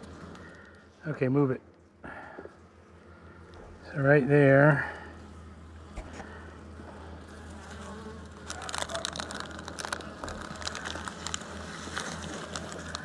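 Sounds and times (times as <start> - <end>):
honey bees buzzing: 0.0 - 13.0
hive parts clicking and scraping: 5.8 - 13.0.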